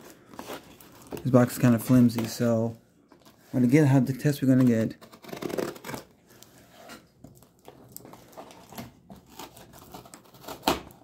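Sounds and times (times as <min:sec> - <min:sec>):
knife cutting cardboard: 0:08.5 - 0:11.0.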